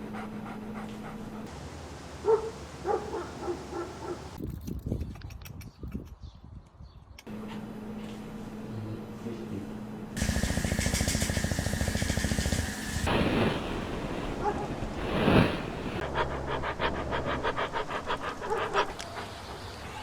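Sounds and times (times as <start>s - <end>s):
puppy panting quickly: 0.0s - 1.5s, 16.0s - 20.0s
fast buzzing rumble: 10.2s - 16.0s.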